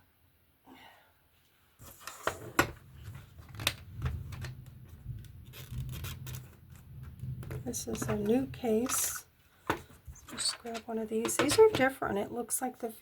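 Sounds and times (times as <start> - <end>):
plastic case being moved: 1.8 - 11.8
small items clicking and knocking: 3.4 - 11.9.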